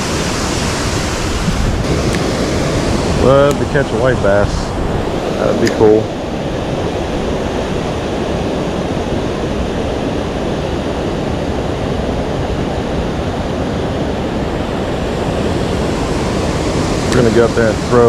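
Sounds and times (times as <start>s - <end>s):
creek water flowing: 0.0s - 7.8s.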